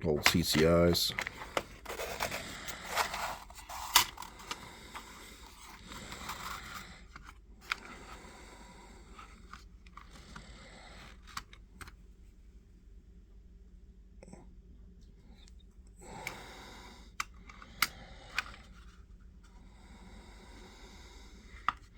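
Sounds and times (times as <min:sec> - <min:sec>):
cardboard box rustling and scraping: 0:01.2 - 0:07.2.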